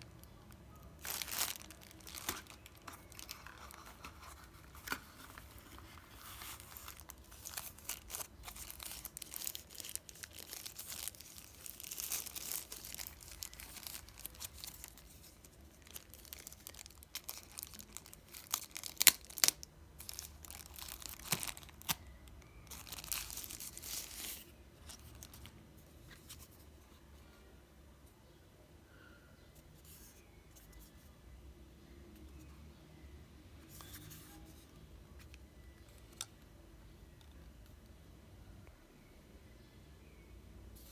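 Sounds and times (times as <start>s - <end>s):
packaging crinkling and tearing: 0.0s - 25.5s.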